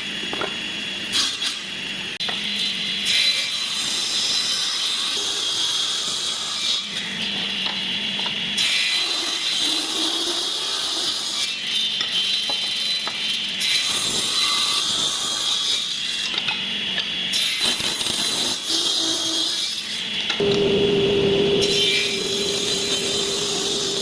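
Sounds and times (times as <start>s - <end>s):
wood cutting noise: 17.3s - 24.0s
power tool whining: 20.4s - 24.0s.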